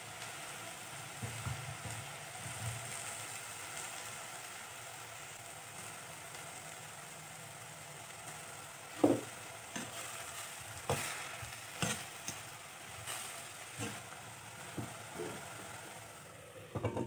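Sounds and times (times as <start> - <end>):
leaves sizzling in a pot: 0.0 - 17.0
spatula stirring: 9.0 - 14.2.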